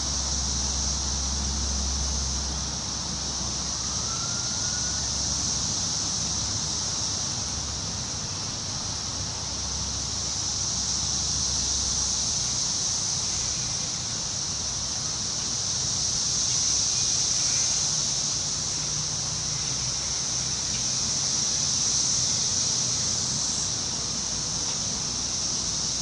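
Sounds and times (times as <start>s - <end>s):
leaves rustling in wind: 0.0s - 26.0s.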